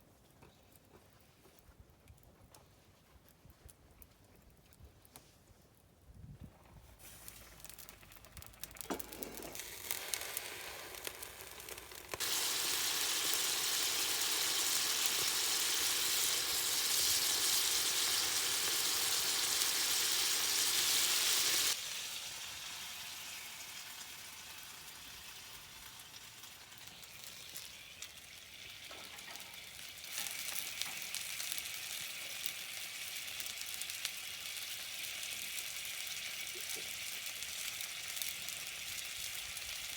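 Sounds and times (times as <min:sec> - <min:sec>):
dumplings sizzling in a pan: 0:07.0 - 0:39.9
loud even hiss: 0:08.8 - 0:22.9.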